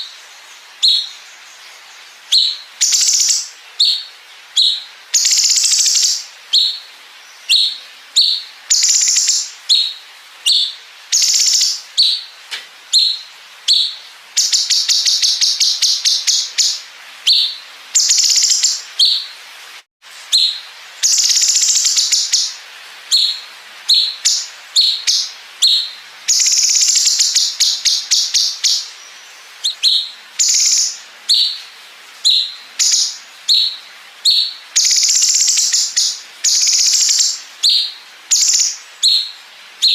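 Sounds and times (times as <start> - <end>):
bird whistling phrases: 29.6 - 31.6.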